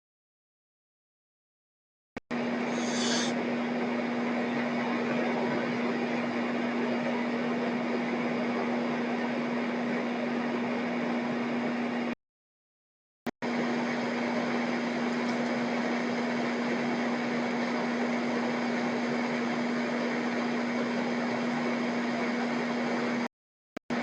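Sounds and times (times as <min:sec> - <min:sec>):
steady hum with hiss: 0:02.5 - 0:03.9.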